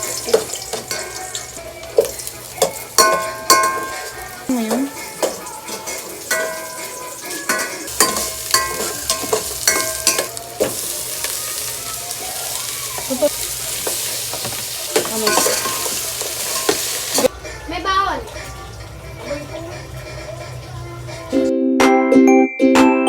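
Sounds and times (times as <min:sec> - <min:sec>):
food frying in a pan: 0:00.0 - 0:21.4
utensil knocking and scraping pan: 0:05.2 - 0:10.8, 0:13.8 - 0:17.3.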